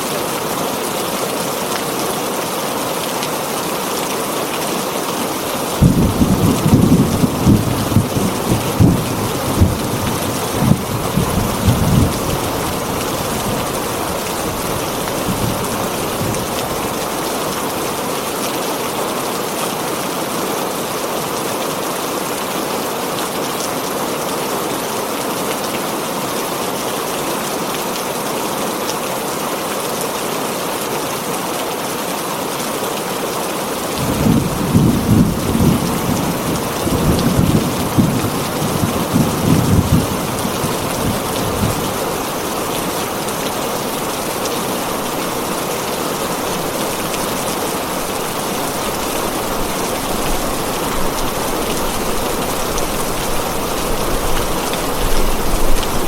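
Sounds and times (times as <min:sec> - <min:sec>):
heavy rain on a tin roof: 0:00.0 - 0:56.0
thunder rumbling: 0:05.8 - 0:17.2, 0:34.0 - 0:56.0.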